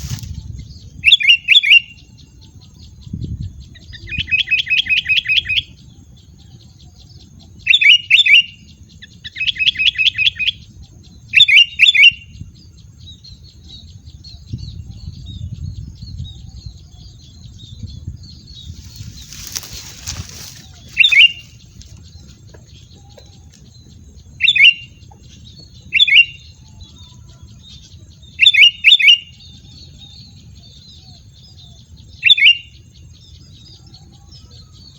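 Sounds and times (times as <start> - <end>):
bird rattling trills: 18.7 - 22.4
bird calling sharp notes: 19.4 - 21.6.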